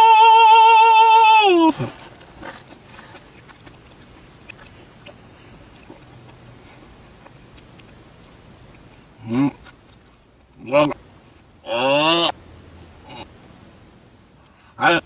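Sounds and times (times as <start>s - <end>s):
high-pitched wailing cry: 0.0s - 1.9s, 11.6s - 12.3s
faint background noise: 0.0s - 15.0s.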